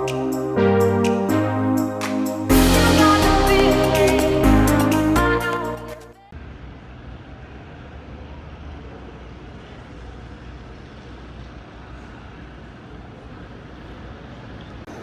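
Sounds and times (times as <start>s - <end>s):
railway station background noise: 6.4s - 15.0s.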